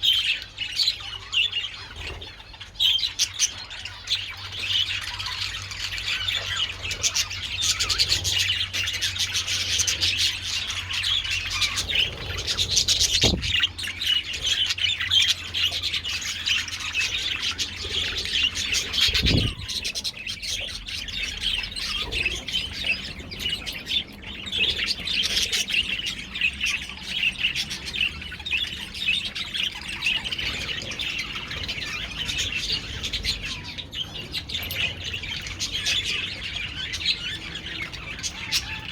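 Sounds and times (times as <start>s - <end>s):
budgerigars chattering and chirping: 0.0s - 38.9s
brief low thumps: 13.1s - 13.6s.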